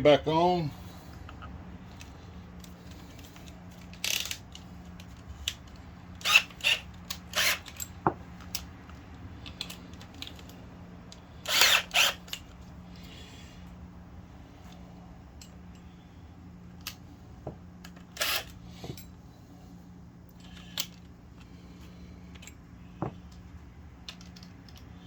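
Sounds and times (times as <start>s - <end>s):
plastic parts scraping and clacking: 1.3s - 12.6s, 22.2s - 25.0s.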